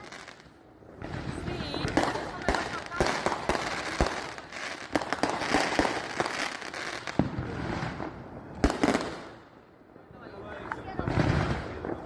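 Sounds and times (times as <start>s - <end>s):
fireworks banging and crackling: 0.0s - 12.0s.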